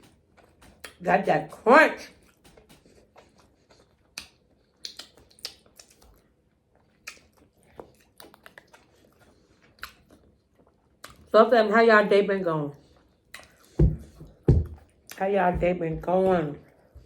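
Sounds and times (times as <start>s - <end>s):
wet mouth clicks: 0.0s - 1.0s, 2.2s - 6.2s, 7.0s - 8.9s, 13.3s - 13.7s
chewing crunchy vegetable: 0.0s - 1.3s, 2.0s - 11.6s, 12.8s - 13.8s.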